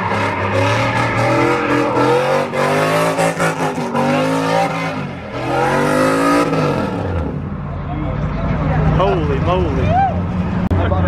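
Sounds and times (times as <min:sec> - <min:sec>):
car engine revving hard: 0:00.0 - 0:07.5.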